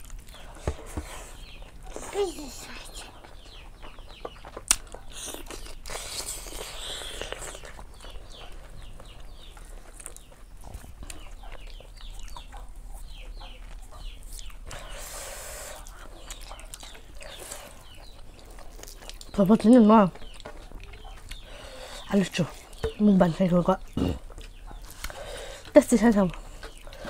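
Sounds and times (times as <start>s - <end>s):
chewing and eating: 0.0s - 27.0s
birds chirping: 0.2s - 27.0s.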